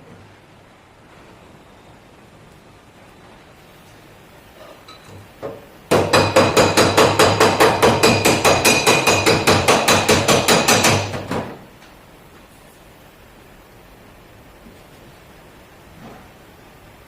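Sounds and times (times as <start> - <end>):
hammer beating sheet metal: 5.9 - 11.6.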